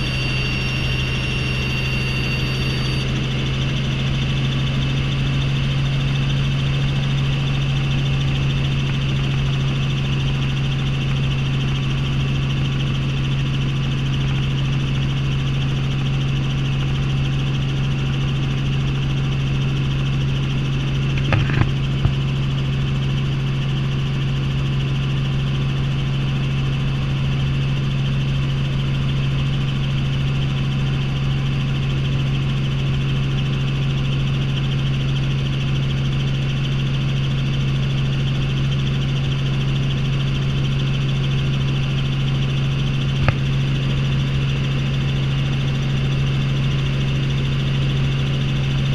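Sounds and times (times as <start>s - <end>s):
turbine whine: 0.0s - 25.4s, 36.7s - 48.9s
helicopter rotor drone: 0.0s - 48.9s.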